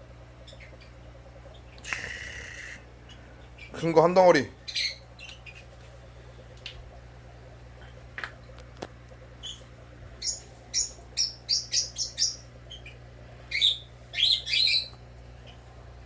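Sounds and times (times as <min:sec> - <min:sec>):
low steady hum: 0:00.0 - 0:16.0
small bird chirping: 0:00.4 - 0:03.9, 0:04.6 - 0:05.7, 0:09.4 - 0:15.6.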